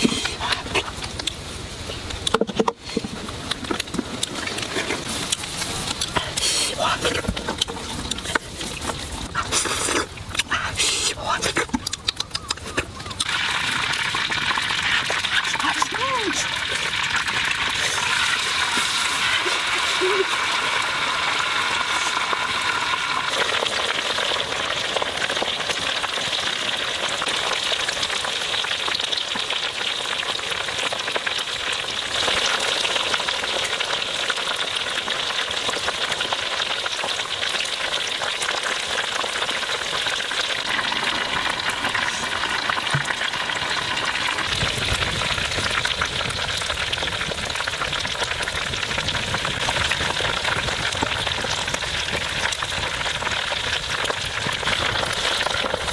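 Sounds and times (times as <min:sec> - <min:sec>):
chicken sizzling in hot oil: 0:13.1 - 0:55.9.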